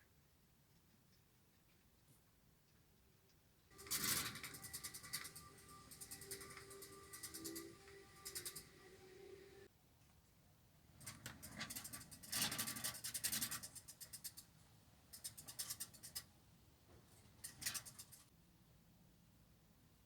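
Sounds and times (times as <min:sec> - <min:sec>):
handling noise scratching and rubbing: 0:03.7 - 0:09.7, 0:11.0 - 0:14.4, 0:15.2 - 0:16.2, 0:17.2 - 0:18.3
rapid clicks: 0:03.7 - 0:09.7, 0:11.0 - 0:14.5, 0:15.1 - 0:16.2, 0:17.3 - 0:18.3.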